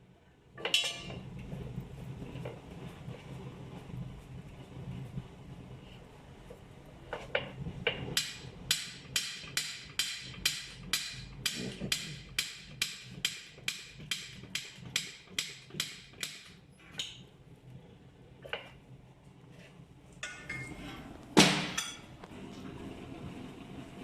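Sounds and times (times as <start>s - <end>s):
hammer tapping on metal wheel: 7.2s - 16.6s.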